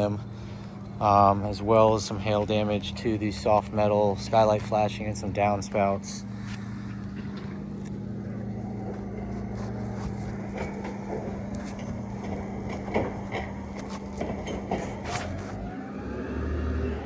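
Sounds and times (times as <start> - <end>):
low motor hum: 0.0 - 17.0
light clicks and scrapes: 8.7 - 15.7.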